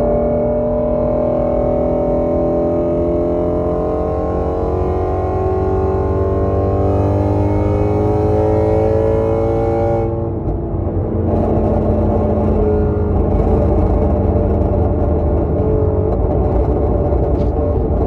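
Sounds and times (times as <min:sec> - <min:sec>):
car engine accelerating: 0:00.0 - 0:18.0
exhaust pops and crackles: 0:10.3 - 0:18.0.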